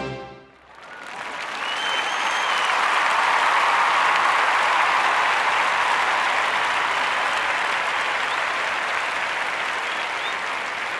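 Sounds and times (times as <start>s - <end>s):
group of people applauding: 0.5s - 10.9s.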